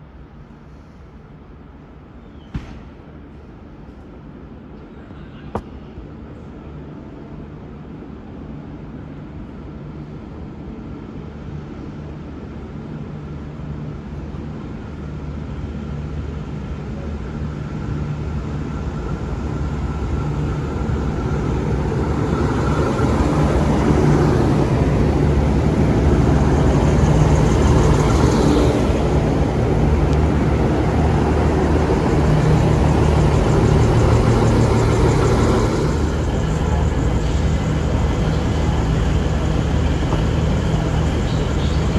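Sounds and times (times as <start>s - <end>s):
train passing: 15.0s - 41.9s.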